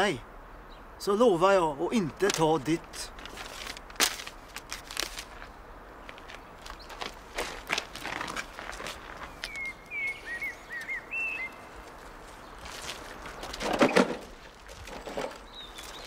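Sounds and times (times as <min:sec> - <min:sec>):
soft footsteps: 0:02.8 - 0:13.7
small bird chirping: 0:09.1 - 0:11.8.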